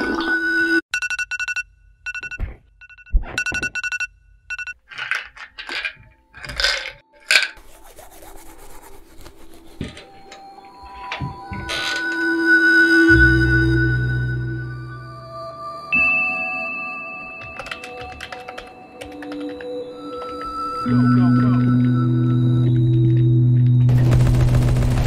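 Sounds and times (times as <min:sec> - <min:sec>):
phone ringtone beeps: 0:01.0 - 0:04.8.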